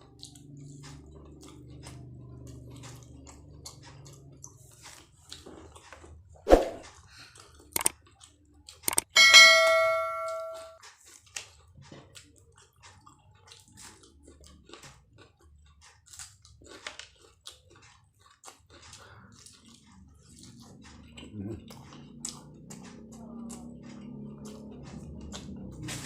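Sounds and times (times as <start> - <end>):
faint chewing clicks: 0.0 - 6.3, 7.0 - 9.1, 10.8 - 26.0
sharp clicks: 8.8 - 9.2
ringing clink of tableware: 9.1 - 10.8.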